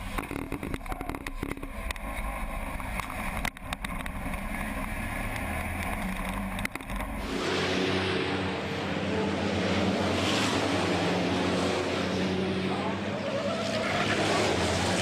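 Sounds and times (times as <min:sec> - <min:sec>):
diesel engine running hard: 0:00.0 - 0:15.0.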